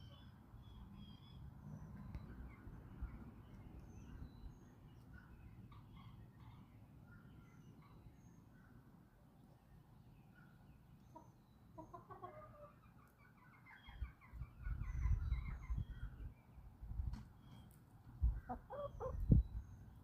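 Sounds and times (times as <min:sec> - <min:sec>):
faint small birds chirping: 0:00.0 - 0:20.0
chickens clucking: 0:11.1 - 0:15.9, 0:18.2 - 0:19.4.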